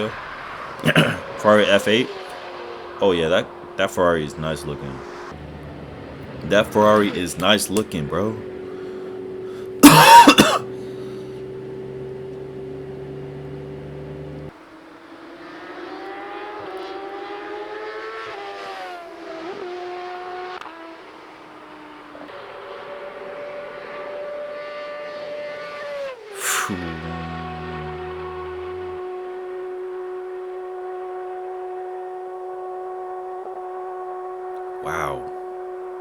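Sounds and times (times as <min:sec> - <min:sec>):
engine shifting gears: 0:00.0 - 0:36.0
vehicle engines on motorway: 0:00.0 - 0:36.0
loud short engine burst: 0:04.4 - 0:11.4.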